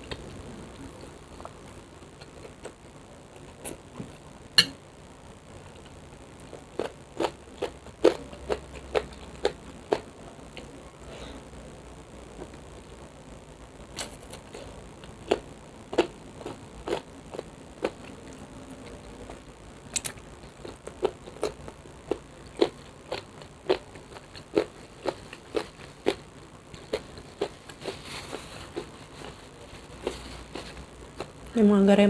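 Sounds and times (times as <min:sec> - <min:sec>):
chewing with sharp crunches: 0:05.8 - 0:10.8, 0:14.0 - 0:31.5.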